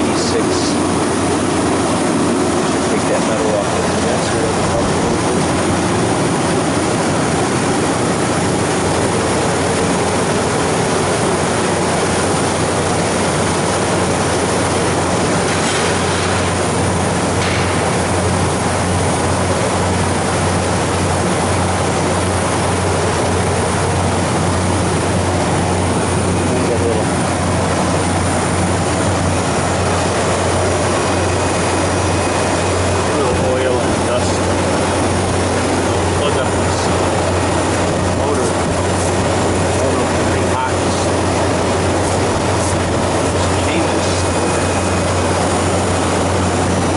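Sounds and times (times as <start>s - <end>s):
compressor low hum: 0.0s - 46.9s
condenser fan airflow: 0.0s - 46.9s.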